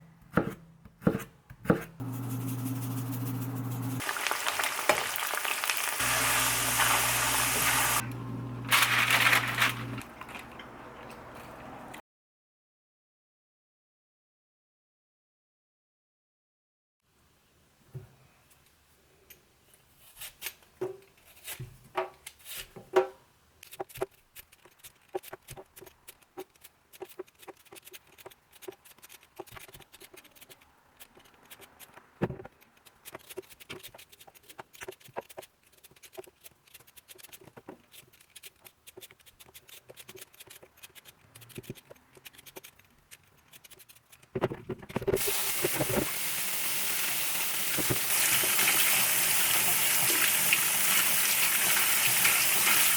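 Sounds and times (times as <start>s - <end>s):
water running from tap: 3.4s - 8.7s, 45.2s - 52.9s.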